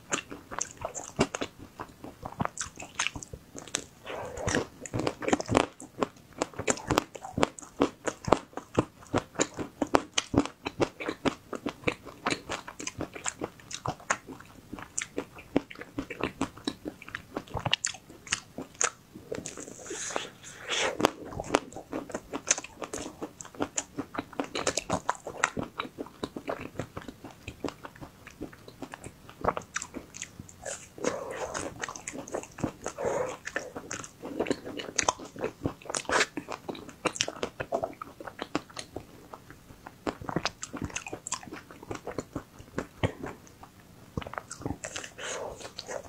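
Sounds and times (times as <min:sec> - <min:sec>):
mouth sounds: 0:04.0 - 0:05.1, 0:19.2 - 0:23.3, 0:30.6 - 0:35.0, 0:44.6 - 0:46.0.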